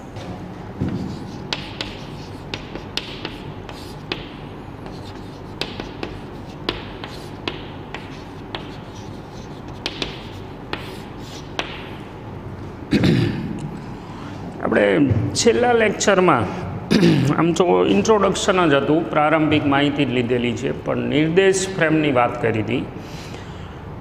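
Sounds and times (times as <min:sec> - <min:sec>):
chalk scratching on blackboard: 0:00.8 - 0:11.8
chalk tapping on blackboard: 0:00.8 - 0:11.9.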